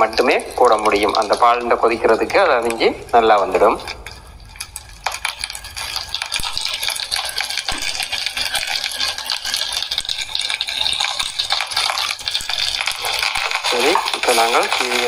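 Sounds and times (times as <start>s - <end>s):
vegetables sizzling in hot oil: 4.7s - 15.0s.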